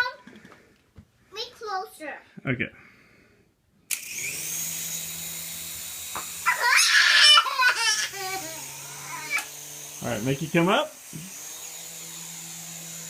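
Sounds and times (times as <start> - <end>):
toy helicopter motor whirring: 3.9 - 13.0
young child squealing and laughing: 6.4 - 9.5.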